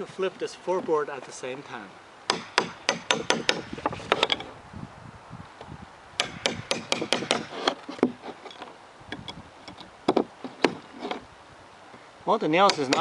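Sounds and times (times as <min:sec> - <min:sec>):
hammer blows on nail puller: 0:06.2 - 0:08.3.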